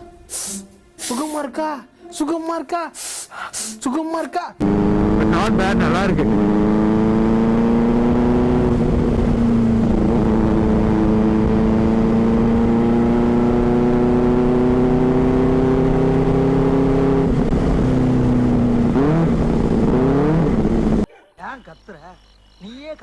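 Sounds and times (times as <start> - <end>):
motorcycle engine revving: 4.6 - 21.1
wind noise: 7.9 - 12.9.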